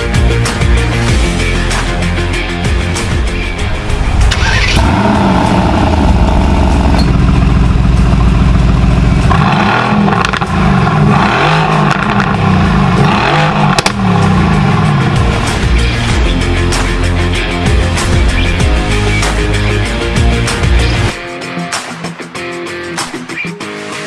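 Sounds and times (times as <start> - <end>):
car engine starting and revving: 3.5 - 16.7.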